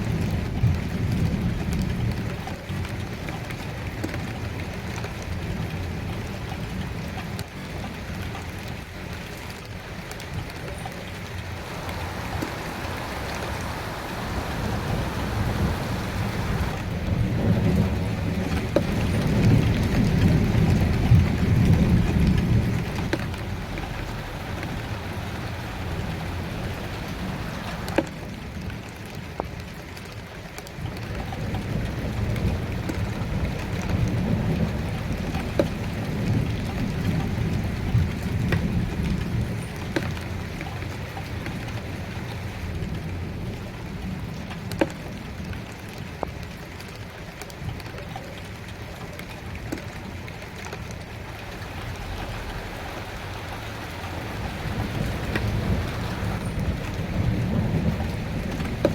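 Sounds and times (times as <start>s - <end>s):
steady rain: 0.0s - 58.9s
close raindrop taps: 0.1s - 5.4s, 8.2s - 41.9s, 44.5s - 58.9s
low rolling thunder: 11.6s - 28.0s, 51.3s - 58.9s.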